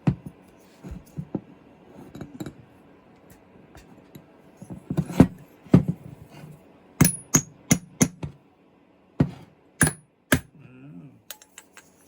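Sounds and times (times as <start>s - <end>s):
hammer knocking on engine housing: 7.0s - 8.4s.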